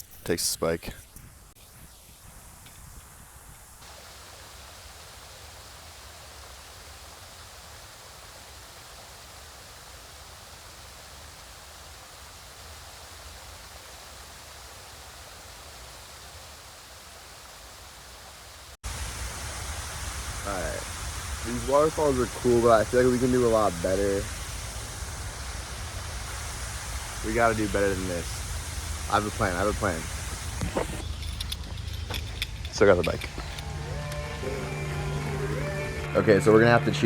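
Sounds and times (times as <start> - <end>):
waterfall rushing: 3.8 - 31.0.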